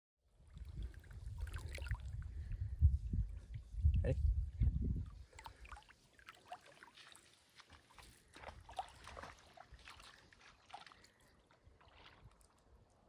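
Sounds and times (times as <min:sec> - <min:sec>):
river water trickling: 0:00.3 - 0:02.6, 0:05.0 - 0:13.0
small splashes and drips: 0:00.5 - 0:02.6, 0:05.0 - 0:12.8.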